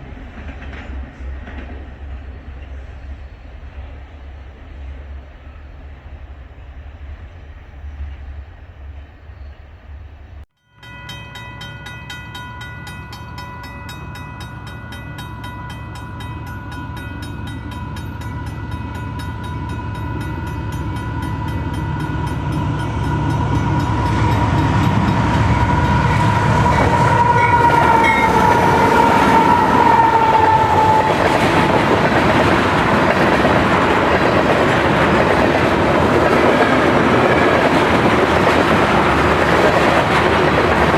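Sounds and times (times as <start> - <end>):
rail and wheel noise: 0.0 - 40.9
train engine rumble: 0.0 - 40.9
locomotive horn blast: 20.6 - 32.0.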